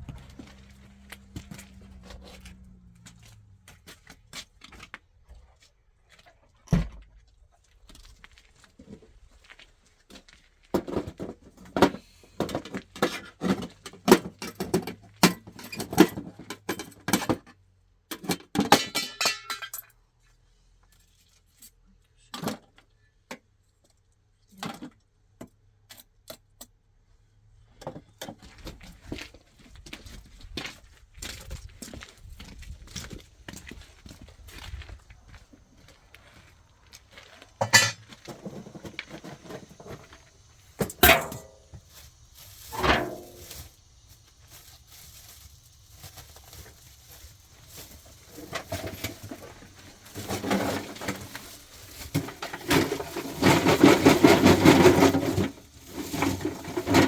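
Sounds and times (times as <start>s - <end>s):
hard objects clinking and rattling: 18.2s - 19.9s.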